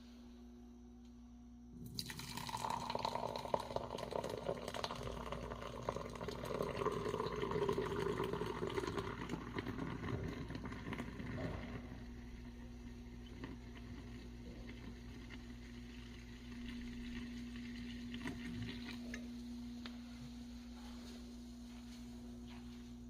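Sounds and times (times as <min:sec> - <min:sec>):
carbonated water pouring and fizzing: 0:01.8 - 0:19.5.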